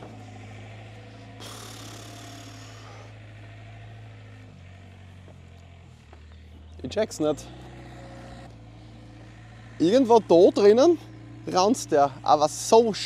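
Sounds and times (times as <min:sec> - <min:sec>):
excavator diesel engine idling: 0:00.0 - 0:13.0
hiss: 0:01.4 - 0:03.1.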